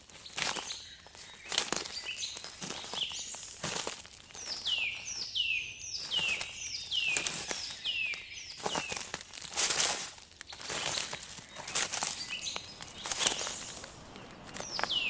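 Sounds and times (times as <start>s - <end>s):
crackling rustles: 0.0s - 15.0s
songbird singing descending notes: 4.4s - 9.0s, 10.6s - 15.0s.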